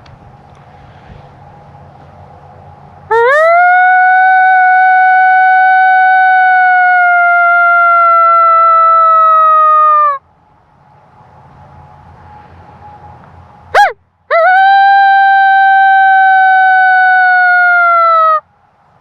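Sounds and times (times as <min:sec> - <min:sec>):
coyote howl on a diaphragm call: 0:03.1 - 0:10.2, 0:13.8 - 0:18.4.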